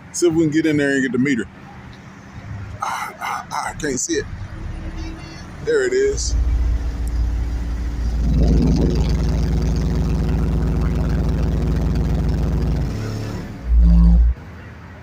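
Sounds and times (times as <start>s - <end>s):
loud deep bass tone: 3.8s - 14.4s.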